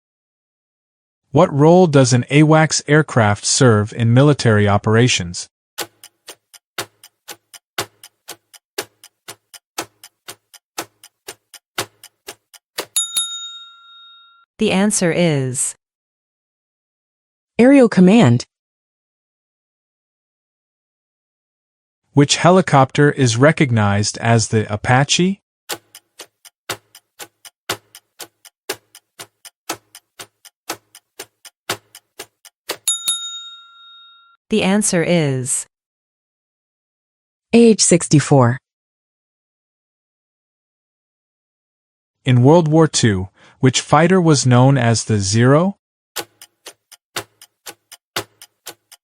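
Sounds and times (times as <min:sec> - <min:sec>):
timer ticking like a clock: 0:05.8 - 0:13.7, 0:25.7 - 0:33.6, 0:46.2 - 0:49.0.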